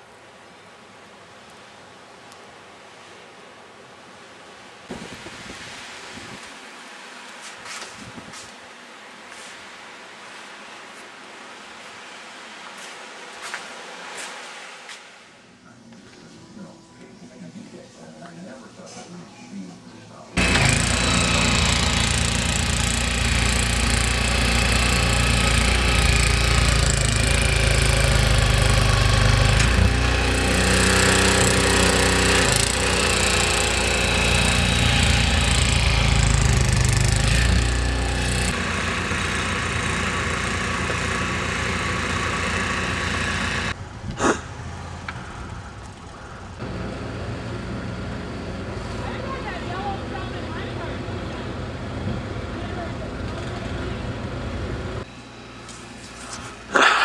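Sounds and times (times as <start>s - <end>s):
engine running roughly: 20.4s - 43.8s, 46.5s - 55.1s.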